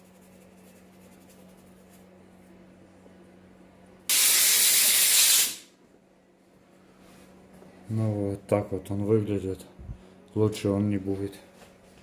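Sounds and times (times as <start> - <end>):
pressurised air jet hissing: 4.1 - 5.7.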